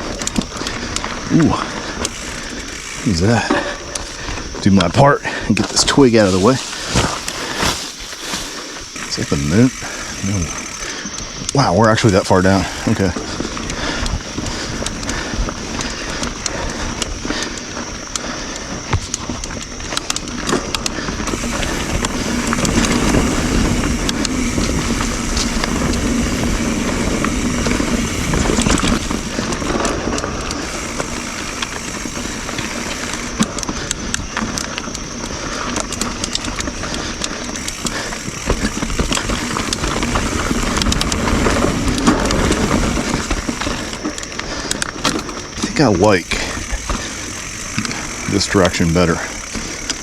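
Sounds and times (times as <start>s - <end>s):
bike clicks and rattles: 0.0s - 50.0s
bike tyres rushing on dirt: 0.0s - 50.0s.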